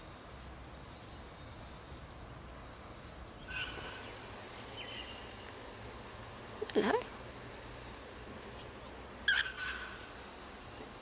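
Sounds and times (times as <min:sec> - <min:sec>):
faint bird chirp: 0:00.0 - 0:05.6
low background hiss: 0:00.0 - 0:11.0
cockatiel call: 0:03.4 - 0:04.2, 0:09.3 - 0:10.1.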